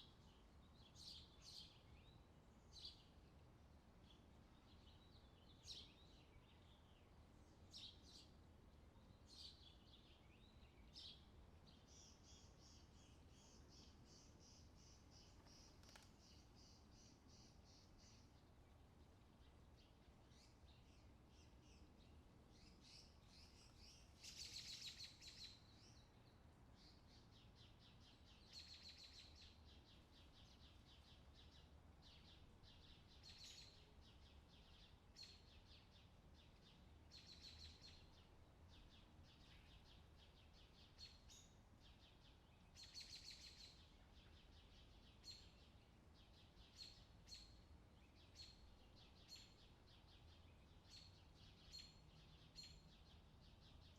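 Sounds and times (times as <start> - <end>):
bird chirps: 19.8 - 53.9.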